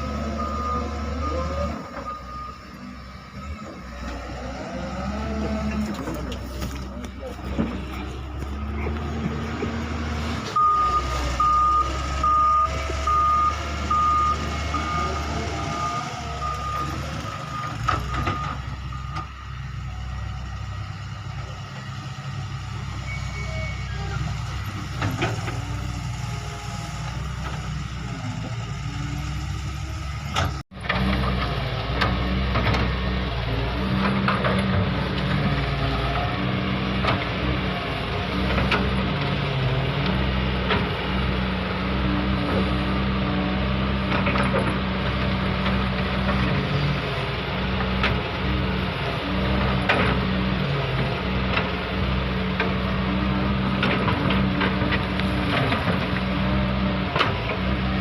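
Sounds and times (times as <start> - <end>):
excavator engine running: 0.0 - 58.0
excavator alarm short beeps: 0.3 - 2.9, 10.6 - 19.3.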